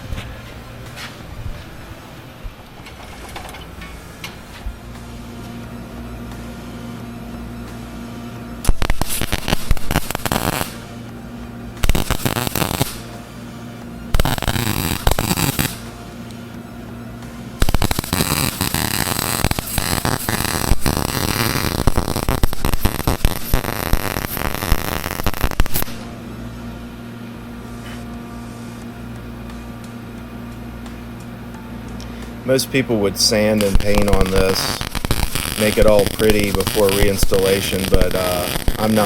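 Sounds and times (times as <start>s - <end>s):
low steady hum: 0.0s - 39.0s
welding arc crackling: 8.6s - 11.0s, 11.8s - 13.2s, 14.1s - 16.0s, 17.6s - 26.1s, 32.5s - 39.0s.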